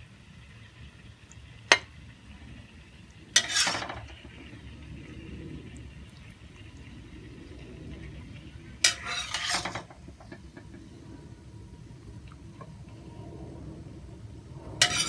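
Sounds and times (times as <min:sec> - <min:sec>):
utensil scraping a pan: 0:03.3 - 0:04.5, 0:08.1 - 0:10.8, 0:14.8 - 0:15.0.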